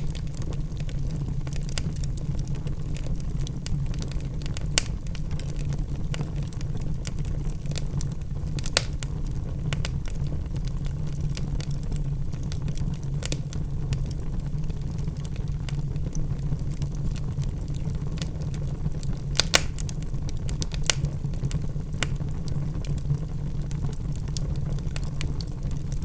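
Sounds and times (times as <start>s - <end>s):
fire crackling and popping: 0.0s - 26.0s.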